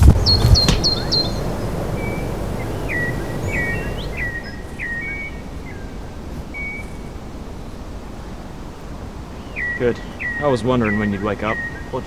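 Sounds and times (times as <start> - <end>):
bird chirps sweeping down: 0.0 - 7.2, 9.3 - 12.0
steady low rumble: 0.0 - 9.2.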